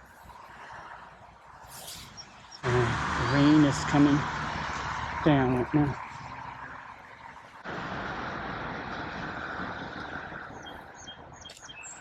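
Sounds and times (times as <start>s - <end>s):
road traffic: 0.0s - 12.0s
light rain falling: 2.6s - 10.8s.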